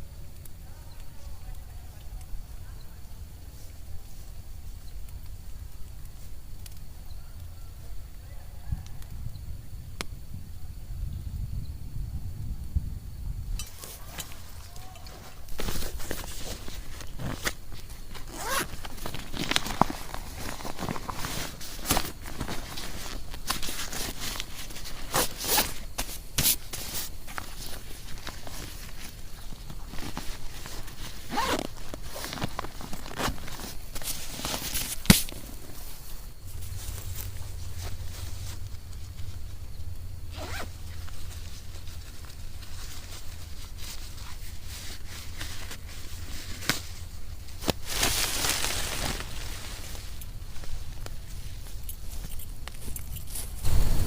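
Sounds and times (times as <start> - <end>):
scrapes and rustles: 13.6 - 54.0.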